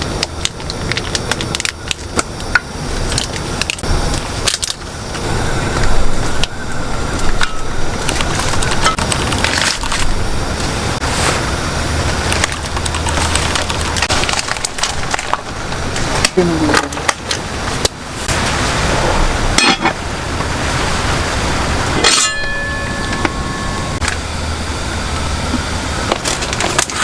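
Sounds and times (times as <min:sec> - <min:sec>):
firewood cracking and snapping: 0:00.0 - 0:06.6, 0:07.2 - 0:18.8, 0:25.6 - 0:27.0.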